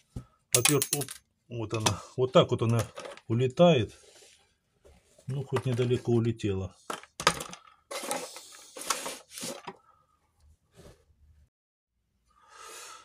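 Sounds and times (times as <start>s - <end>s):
small parts rustling and clicking: 0.6s - 1.9s, 2.6s - 3.3s, 6.8s - 9.8s.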